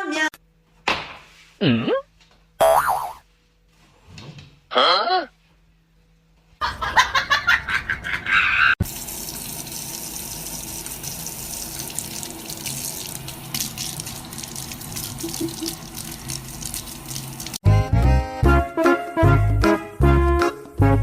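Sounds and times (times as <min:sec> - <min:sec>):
water running from a tap: 0:08.8 - 0:17.6.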